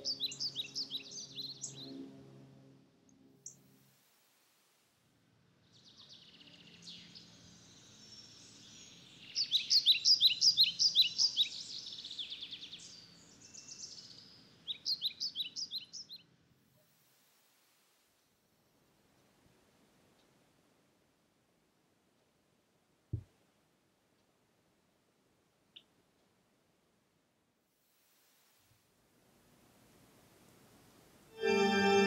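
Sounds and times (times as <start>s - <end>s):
songbirds chirping: 0.0s - 3.8s, 5.1s - 17.2s
faint outdoor hum: 0.0s - 32.0s.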